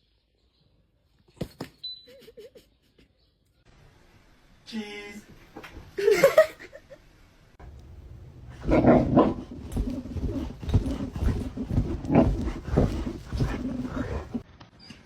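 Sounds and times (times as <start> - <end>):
dog vocalising: 8.6 - 14.4.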